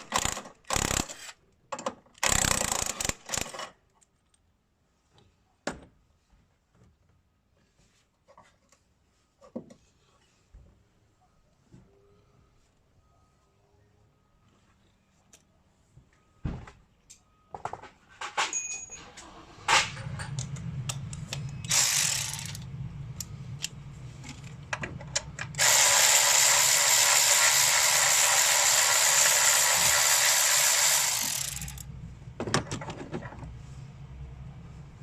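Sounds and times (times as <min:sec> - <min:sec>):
tools clicking and knocking: 0:00.0 - 0:04.5
ratchet wrench ratcheting: 0:02.2 - 0:03.6, 0:21.7 - 0:22.7, 0:25.6 - 0:31.9.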